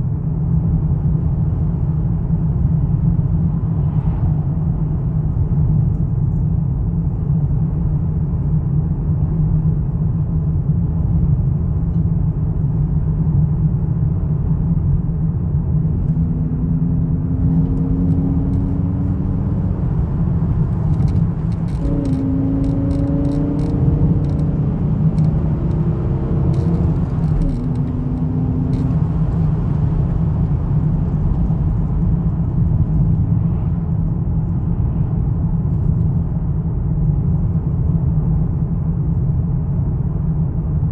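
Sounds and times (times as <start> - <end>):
car engine running: 15.6 - 31.2
faint ticks: 17.6 - 19.2, 20.6 - 29.5.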